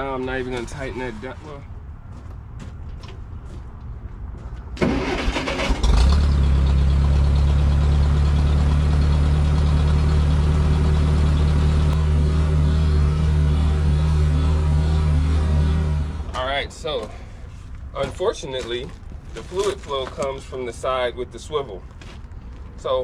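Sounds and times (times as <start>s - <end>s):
engine starter cranking: 4.8s - 6.3s
engine idling: 4.8s - 16.4s.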